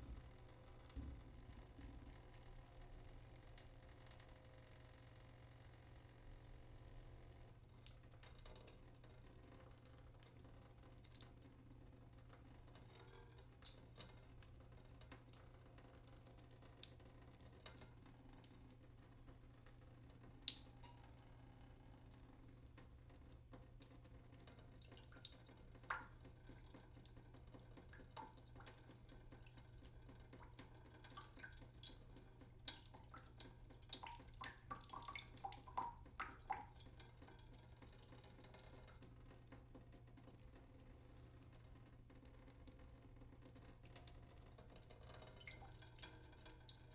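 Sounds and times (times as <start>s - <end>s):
water dripping: 7.7s - 46.9s.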